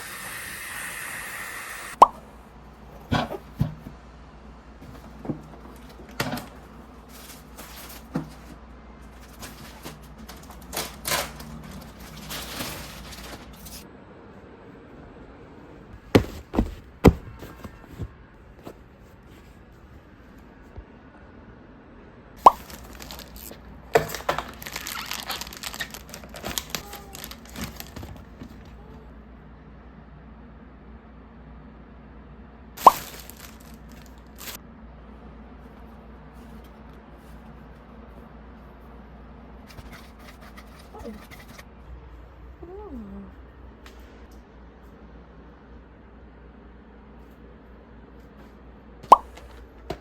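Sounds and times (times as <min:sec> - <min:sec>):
rustling: 0:04.8 - 0:13.8, 0:16.0 - 0:20.5, 0:22.4 - 0:29.1, 0:32.8 - 0:34.6.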